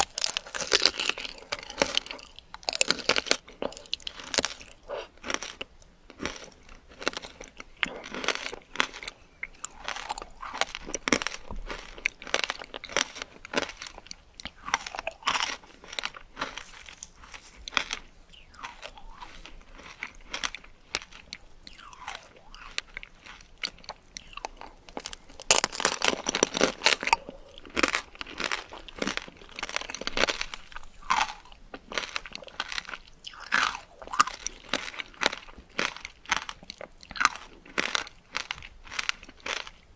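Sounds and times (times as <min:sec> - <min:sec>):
crunching candied fruit: 0:00.0 - 0:39.9.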